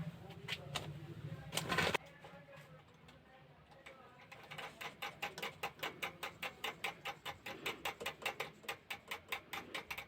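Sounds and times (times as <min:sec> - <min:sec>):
ratchet tool clicking: 0:04.3 - 0:10.0.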